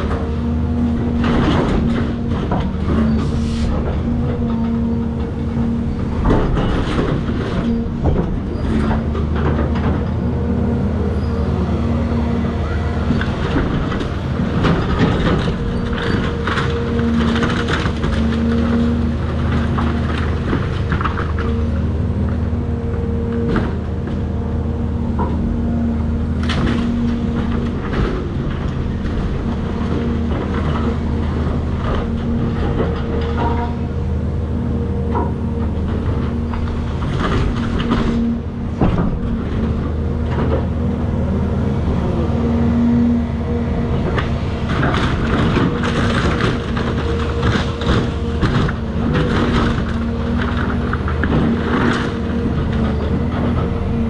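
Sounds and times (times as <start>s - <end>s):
excavator diesel engine running: 0.0s - 54.0s
debris knocking and crunching: 44.2s - 53.7s.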